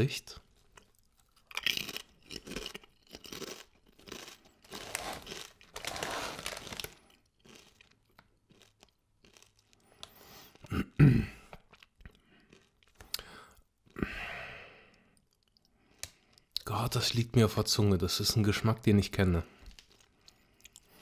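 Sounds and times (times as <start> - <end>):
crunching and chewing chips: 0.4 - 10.7, 11.4 - 14.1, 19.4 - 21.0.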